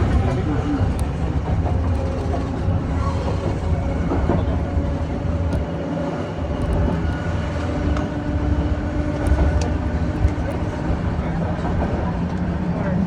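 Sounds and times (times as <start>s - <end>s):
rail car rumbling on track: 0.0s - 13.0s.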